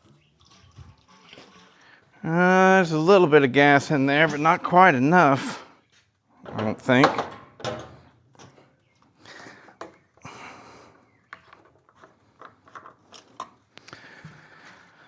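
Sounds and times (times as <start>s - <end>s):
handling clicks and knocks: 6.4s - 8.6s, 11.3s - 13.8s.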